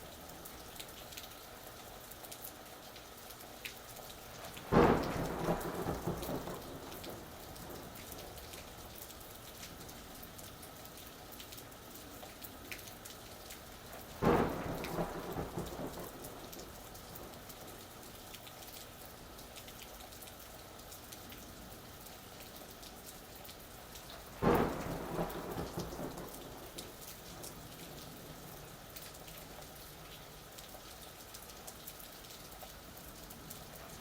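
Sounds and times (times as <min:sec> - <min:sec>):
steady rain falling: 0:00.0 - 0:34.0
thunder claps rumbling: 0:04.5 - 0:08.6, 0:14.2 - 0:17.8, 0:24.4 - 0:28.7.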